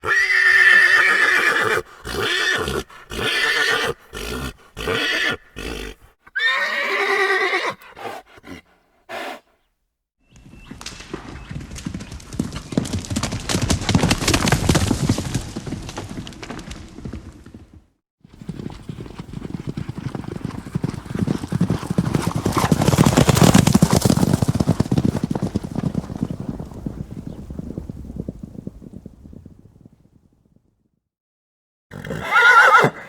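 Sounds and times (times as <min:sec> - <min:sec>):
horse neighing: 0:00.0 - 0:09.5, 0:31.9 - 0:33.0
hoofbeats: 0:00.0 - 0:09.6, 0:10.3 - 0:29.2.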